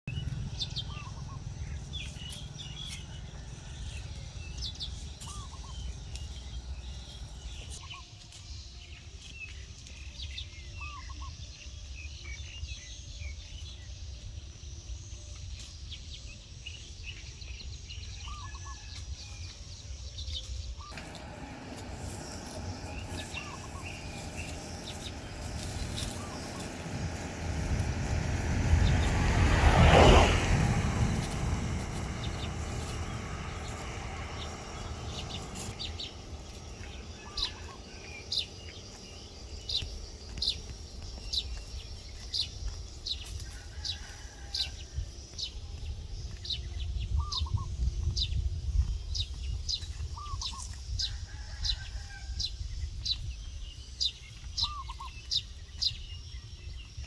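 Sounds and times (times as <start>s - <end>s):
steady low rumble: 0.1s - 7.8s, 20.9s - 43.2s
birds chirping and calling: 0.1s - 8.0s, 20.8s - 29.3s, 31.0s - 42.5s, 54.1s - 56.1s.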